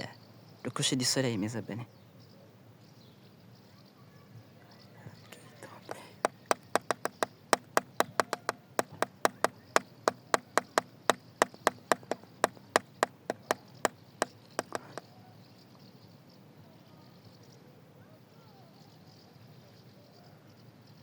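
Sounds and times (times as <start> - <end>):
sharp hard knocks: 6.2 - 15.0.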